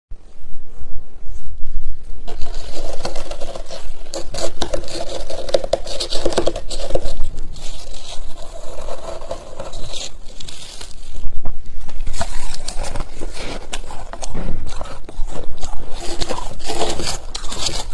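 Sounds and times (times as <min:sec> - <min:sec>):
freezer frost being scraped: 0:02.3 - 0:11.3, 0:11.9 - 0:17.9.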